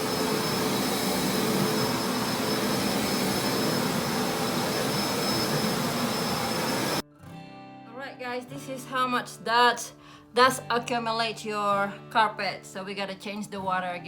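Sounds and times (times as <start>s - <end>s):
vacuum cleaner running: 0.0s - 7.0s.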